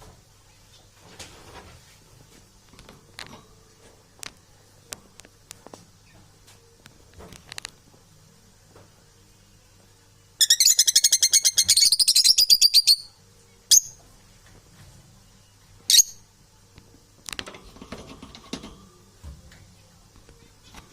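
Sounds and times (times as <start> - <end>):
parrot chirping and squawking: 10.4 - 13.1, 15.9 - 16.2.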